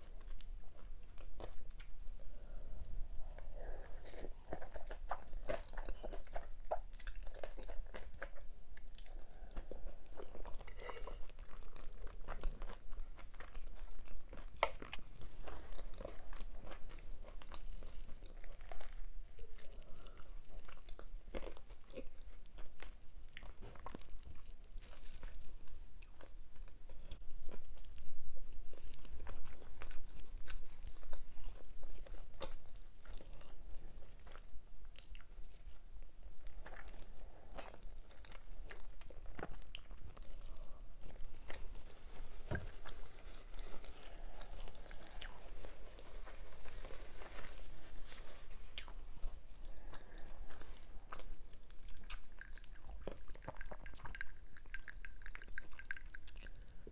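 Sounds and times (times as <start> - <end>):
wet mouth clicks: 53.3 - 56.8.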